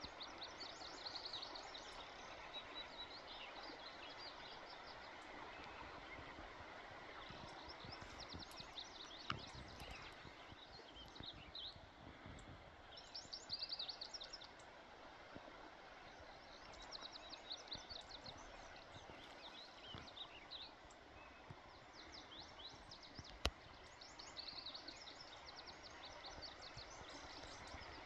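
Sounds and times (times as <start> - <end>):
songbirds chirping and trilling: 0.0 - 11.8.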